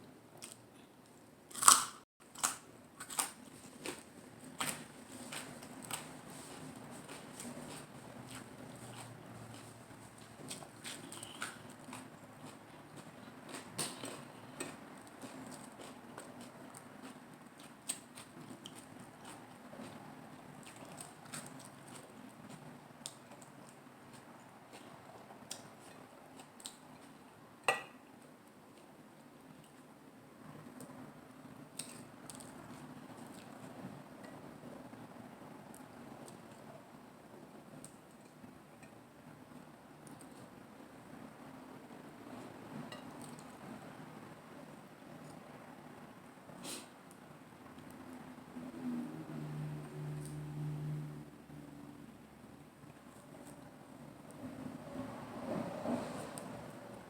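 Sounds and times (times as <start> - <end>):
crunchy chewing of lettuce: 1.5 - 27.3.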